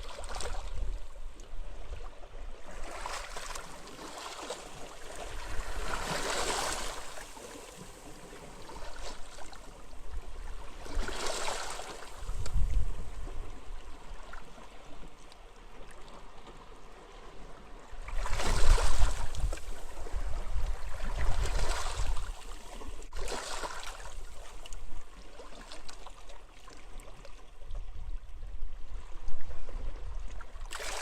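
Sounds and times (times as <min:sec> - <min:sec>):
low rumble of wind: 0:00.0 - 0:31.0
sea waves washing onto beach: 0:02.8 - 0:09.8.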